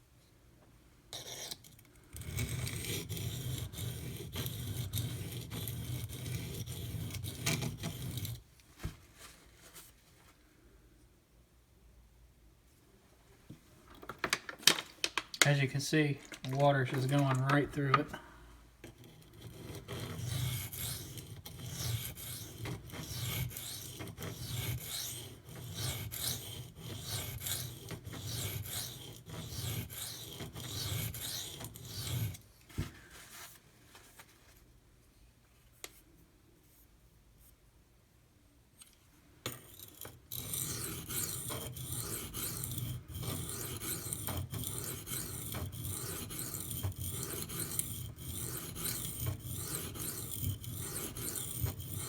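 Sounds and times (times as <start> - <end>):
knife rasping on whetstone: 1.2 - 1.6, 2.2 - 8.4, 18.9 - 32.4, 39.7 - 52.0.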